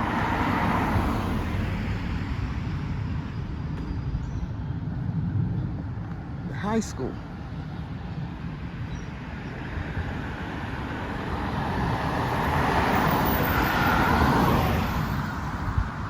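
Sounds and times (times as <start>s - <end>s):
car passing by: 0.0s - 4.1s, 9.7s - 16.0s
traffic rumble: 0.0s - 16.0s.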